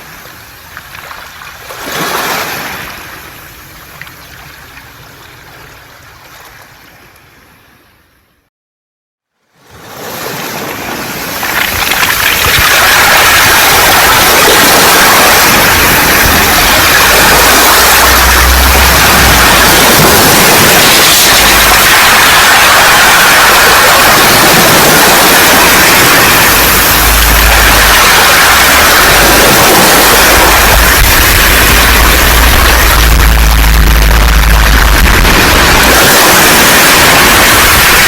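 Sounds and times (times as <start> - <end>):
surf washing over pebbles: 0.8 - 3.3, 9.8 - 38.0
deep rumbles: 11.6 - 38.0.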